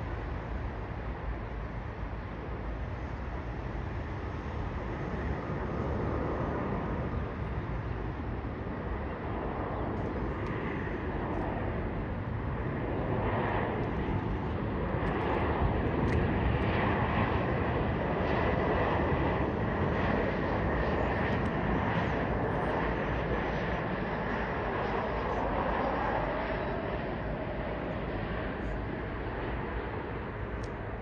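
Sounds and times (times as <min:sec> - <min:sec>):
jet engines rushing with whine: 0:00.0 - 0:31.0.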